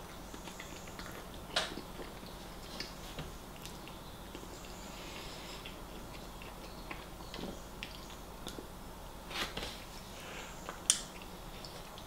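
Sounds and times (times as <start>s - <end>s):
person chewing: 0.1s - 8.8s.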